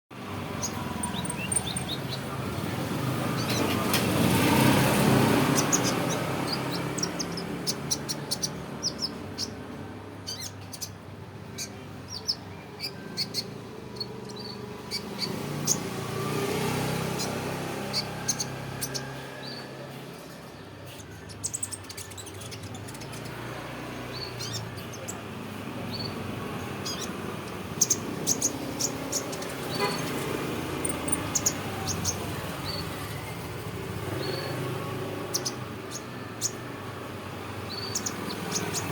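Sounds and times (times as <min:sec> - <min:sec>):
passing traffic rumble: 0:00.1 - 0:38.9
young songbird chirping: 0:00.5 - 0:02.5, 0:04.4 - 0:09.6, 0:10.2 - 0:19.8, 0:24.1 - 0:33.1, 0:34.0 - 0:36.7, 0:37.5 - 0:38.9.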